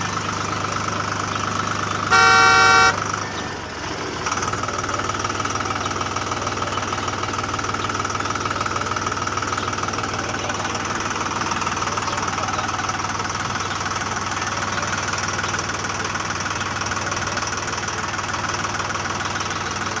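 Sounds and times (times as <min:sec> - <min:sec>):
engine knocking chug: 0:00.0 - 0:20.0.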